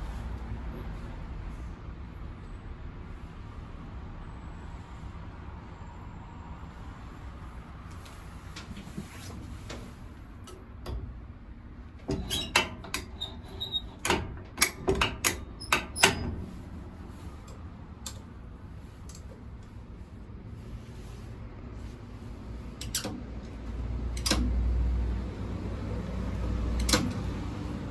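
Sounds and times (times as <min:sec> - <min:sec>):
sharp clicks and knocks: 0:12.0 - 0:16.6, 0:22.8 - 0:24.8, 0:26.3 - 0:27.5.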